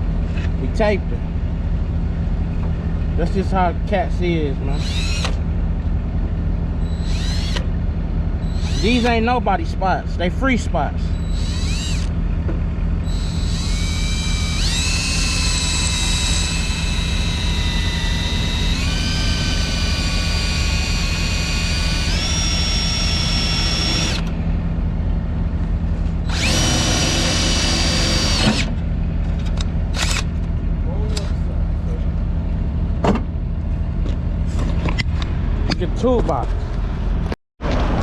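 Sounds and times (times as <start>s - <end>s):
steady low hum: 0.0s - 38.0s
drill bit squealing through steel: 4.8s - 5.4s, 6.8s - 7.7s, 8.4s - 9.2s, 11.1s - 12.1s, 13.0s - 24.3s, 26.3s - 28.7s.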